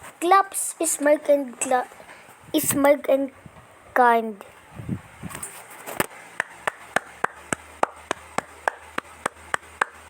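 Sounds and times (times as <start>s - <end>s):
sharp hand claps: 6.4s - 10.0s.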